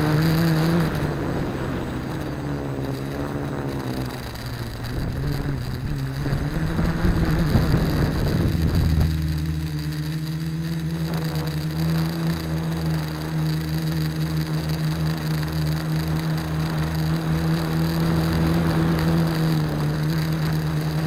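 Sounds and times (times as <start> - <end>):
quadcopter propellers whirring: 0.0 - 21.0.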